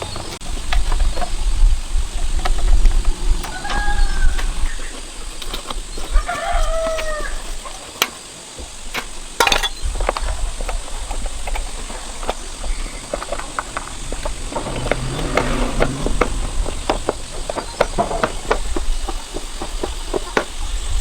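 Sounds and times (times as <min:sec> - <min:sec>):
rooster crowing: 0:03.2 - 0:05.1, 0:06.0 - 0:07.9
low rumble: 0:11.8 - 0:19.2.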